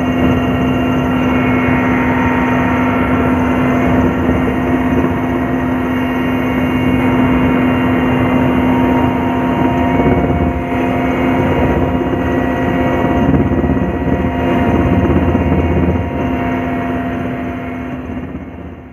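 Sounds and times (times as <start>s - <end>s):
drone motors whining: 0.0s - 18.8s.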